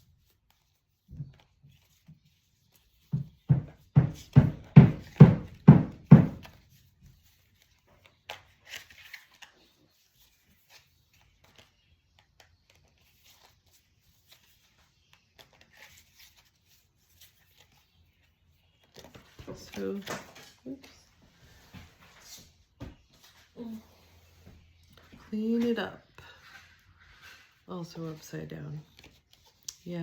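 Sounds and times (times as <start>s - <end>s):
dull thumps of cards: 3.0s - 6.6s
cards clicking and rustling: 6.4s - 23.5s.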